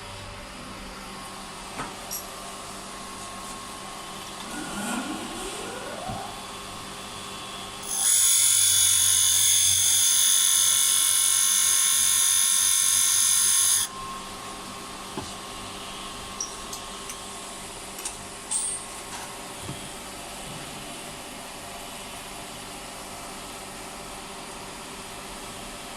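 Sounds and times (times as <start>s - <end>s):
high-pitched power tool whining: 7.8s - 13.9s.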